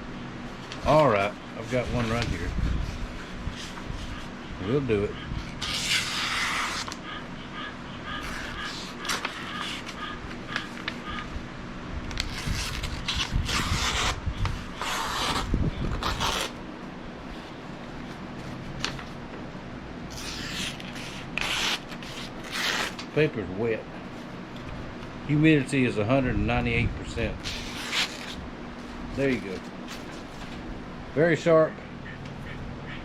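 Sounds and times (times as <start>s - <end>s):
knife slicing damp paper: 5.6s - 7.0s, 12.2s - 16.6s, 20.1s - 23.0s, 27.4s - 28.4s.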